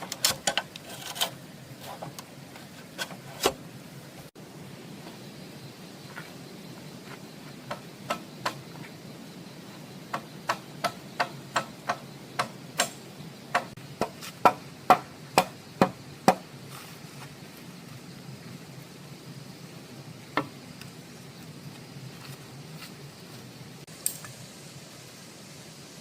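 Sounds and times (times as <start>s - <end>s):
sharp wooden knocks: 7.6s - 8.8s, 10.1s - 16.4s.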